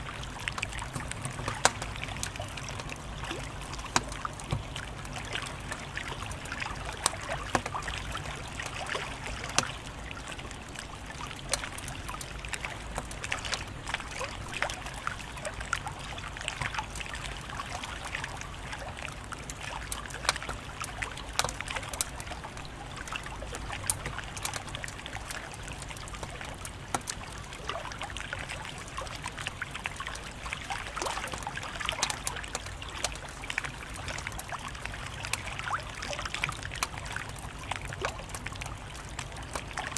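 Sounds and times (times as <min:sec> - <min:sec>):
wood fire crackling: 0:00.0 - 0:15.5, 0:16.5 - 0:35.5
sharp pops and snaps: 0:00.2 - 0:08.8, 0:19.5 - 0:27.2.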